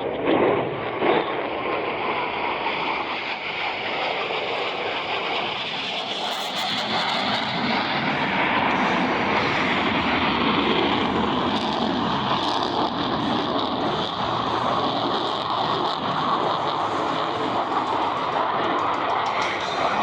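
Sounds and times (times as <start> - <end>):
jet engine rushing noise: 0.0 - 20.0.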